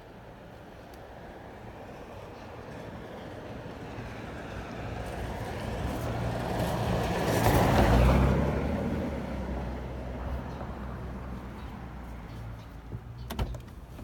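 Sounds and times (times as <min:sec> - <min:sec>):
vehicle rushing past: 0:06.2 - 0:11.4.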